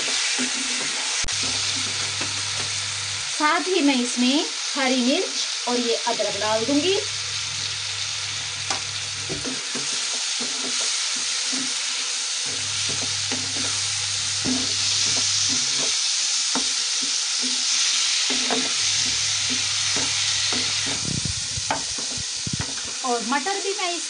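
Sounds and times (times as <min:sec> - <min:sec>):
spatula scraping and tapping pan: 0:00.0 - 0:02.7, 0:08.7 - 0:11.8, 0:12.5 - 0:13.8, 0:14.4 - 0:21.0
masala sizzling in hot oil: 0:00.0 - 0:24.0.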